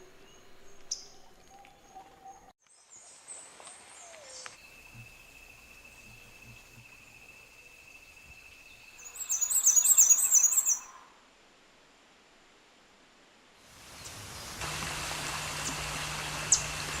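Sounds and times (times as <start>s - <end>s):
bird singing fast high notes: 4.8s - 11.0s.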